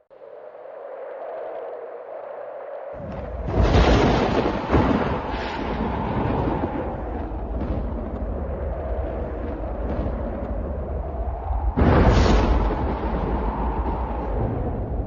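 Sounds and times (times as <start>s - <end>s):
deep rolling thunder rumble: 3.0s - 15.0s
sharp thunder crack: 3.0s - 15.0s
thunder clap: 3.0s - 15.0s.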